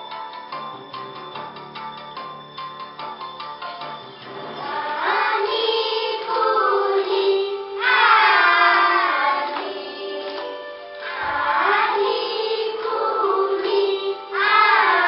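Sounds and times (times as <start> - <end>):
music: 0.0 - 15.0
children singing together: 4.2 - 15.0.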